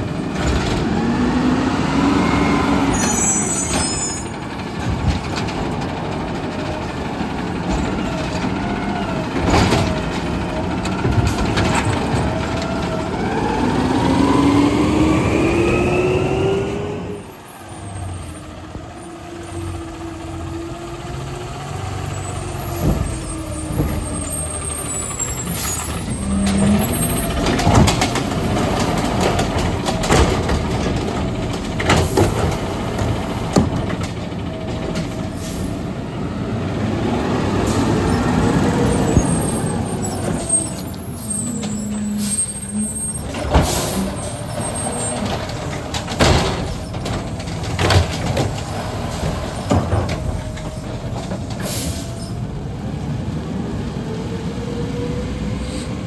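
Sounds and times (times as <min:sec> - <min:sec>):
garbage truck engine and hydraulics: 0:00.0 - 0:56.0
cart banging against hopper: 0:02.4 - 0:14.1, 0:22.5 - 0:35.8, 0:37.0 - 0:52.4.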